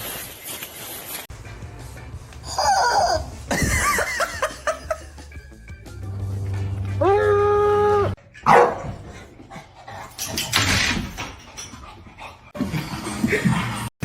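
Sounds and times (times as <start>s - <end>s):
dog barking: 8.4s - 9.1s.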